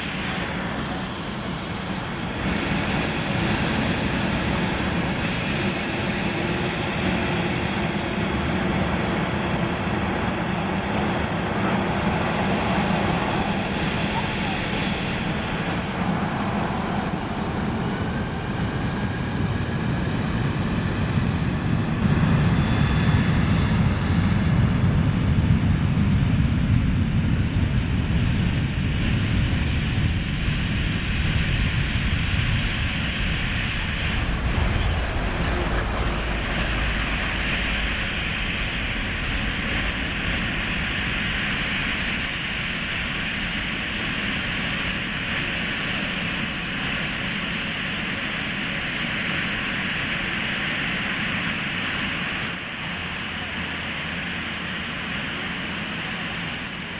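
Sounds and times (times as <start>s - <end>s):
jet engines rumbling: 0.0s - 56.9s
faint rising whine: 32.7s - 41.7s.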